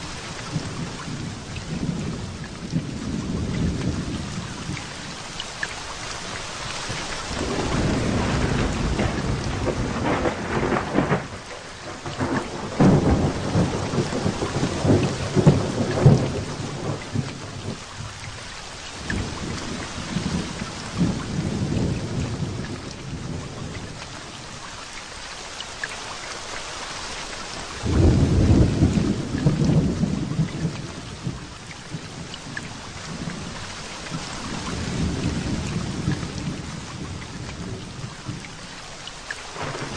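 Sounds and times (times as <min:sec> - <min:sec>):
heavy rain falling: 0:00.0 - 0:39.9
thunder rumbling and cracking: 0:07.3 - 0:18.2, 0:19.0 - 0:24.0, 0:27.8 - 0:38.4, 0:39.5 - 0:39.9.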